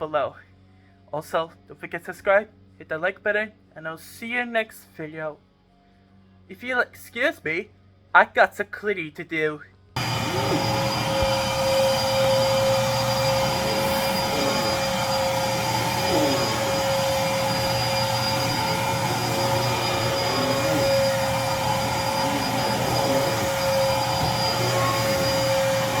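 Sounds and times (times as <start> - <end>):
vacuum cleaner running: 10.0 - 26.0.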